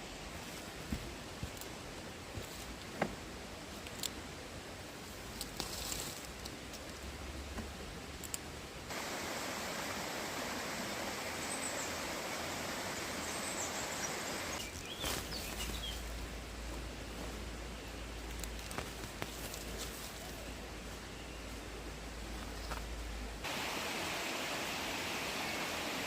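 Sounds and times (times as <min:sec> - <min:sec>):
steady rush of noise: 0:00.0 - 0:26.0
faint high bird chirps: 0:11.2 - 0:16.1.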